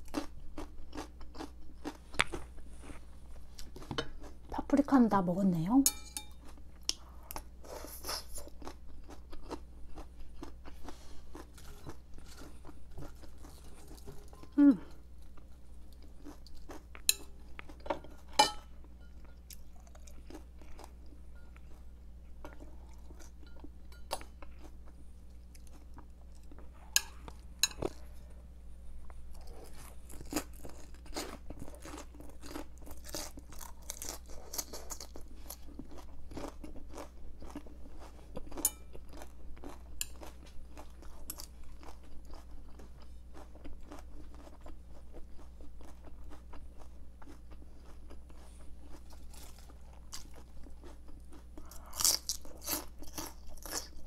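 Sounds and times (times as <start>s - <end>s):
crunching raw cabbage: 29.4s - 54.0s.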